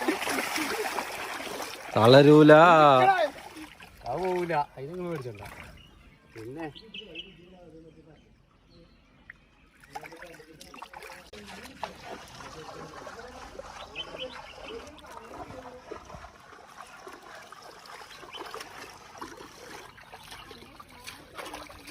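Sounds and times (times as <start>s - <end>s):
water trickling and splashing: 0.0s - 6.9s, 9.1s - 21.9s
faint indistinct voices: 6.3s - 21.9s.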